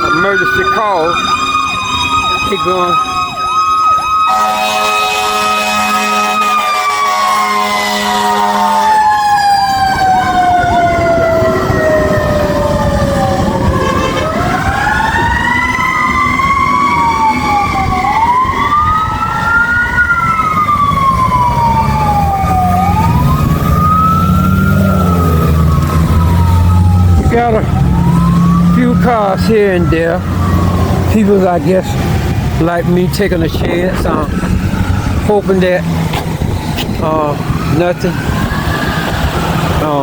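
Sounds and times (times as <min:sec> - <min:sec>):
fire truck siren wailing: 0:00.0 - 0:40.0
deep horn blast: 0:04.3 - 0:09.1, 0:13.4 - 0:14.7.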